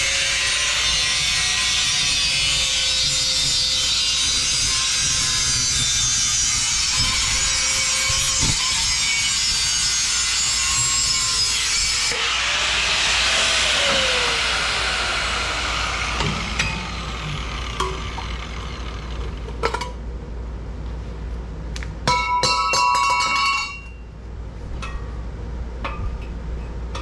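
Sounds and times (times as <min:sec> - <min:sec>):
power tool grinding steel: 0:00.0 - 0:19.6
tone sliding down in pitch: 0:12.2 - 0:18.1.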